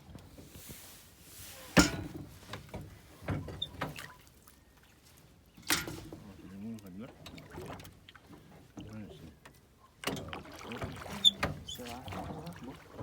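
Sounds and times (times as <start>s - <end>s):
light knocks and clunks: 1.8s - 4.1s.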